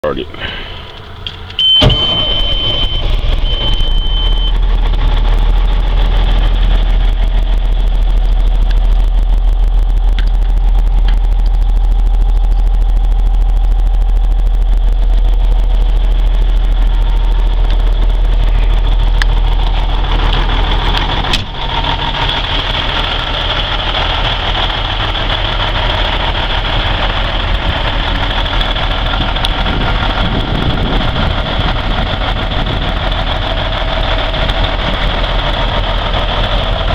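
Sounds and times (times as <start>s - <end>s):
diesel truck engine idling: 0.0s - 36.9s
high beep: 1.6s - 4.6s.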